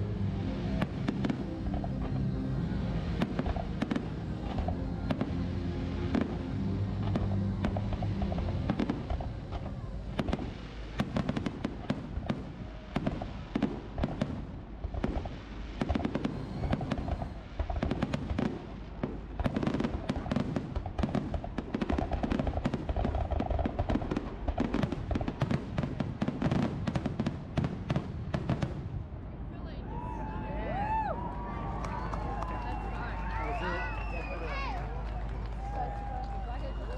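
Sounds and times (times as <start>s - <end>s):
low rumble: 0.0s - 25.8s
fireworks cracks and bangs: 0.6s - 29.1s.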